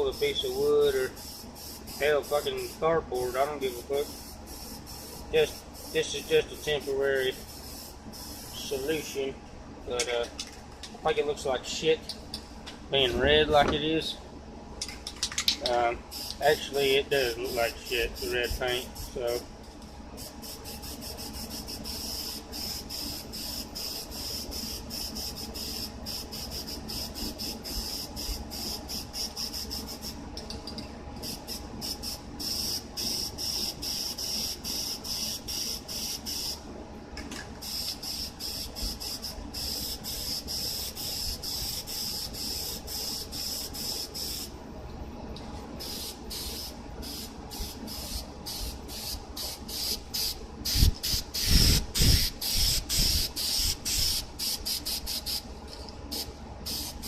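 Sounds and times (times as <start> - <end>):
spray paint can hissing: 1.1 - 2.7, 4.0 - 6.7, 7.3 - 8.6, 16.1 - 16.4, 20.2 - 30.2, 31.2 - 36.6, 37.6 - 44.5, 45.8 - 55.4, 56.1 - 57.0.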